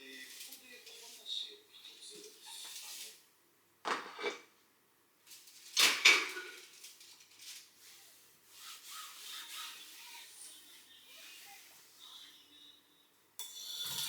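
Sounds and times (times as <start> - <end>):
dishes clattering: 3.8 - 4.5, 5.8 - 7.4
kitchenware knock: 3.9 - 4.4
rubbing: 6.4 - 11.9.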